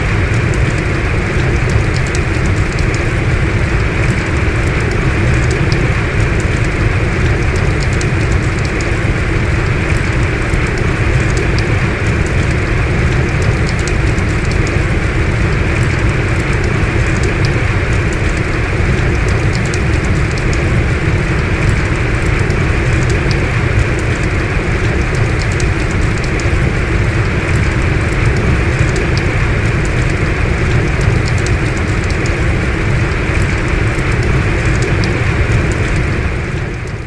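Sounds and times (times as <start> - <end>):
heavy rain falling: 0.0 - 37.0.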